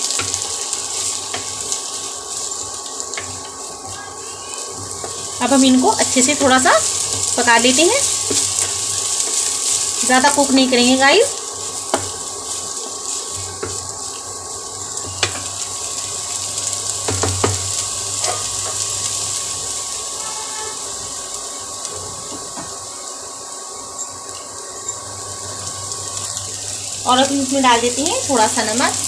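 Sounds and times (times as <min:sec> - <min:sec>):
vegetables sizzling in hot oil: 0:00.0 - 0:29.0.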